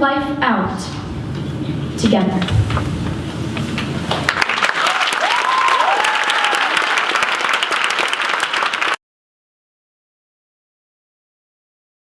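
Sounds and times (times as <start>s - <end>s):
audience clapping: 3.5s - 9.0s
whooping cheers: 4.4s - 9.0s.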